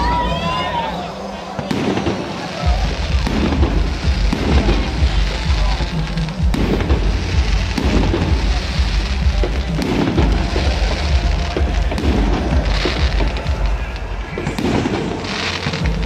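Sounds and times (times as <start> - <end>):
fireworks banging: 0.0 - 16.0
loud music: 0.0 - 16.0
low rumble: 2.8 - 15.2.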